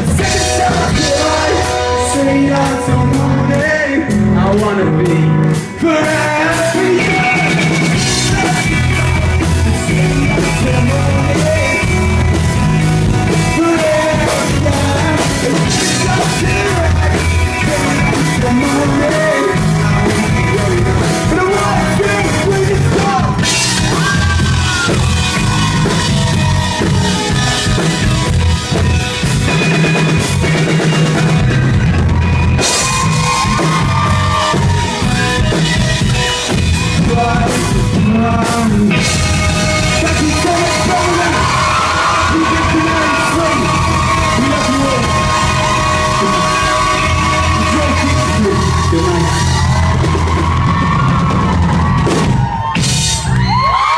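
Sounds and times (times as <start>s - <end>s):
person singing: 0.0s - 12.4s, 13.2s - 27.8s, 36.9s - 50.0s
live rock band playing: 0.0s - 53.9s.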